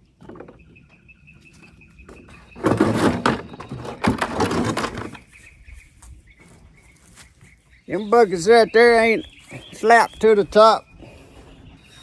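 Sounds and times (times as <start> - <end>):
handling noise clatter: 1.5 - 5.4.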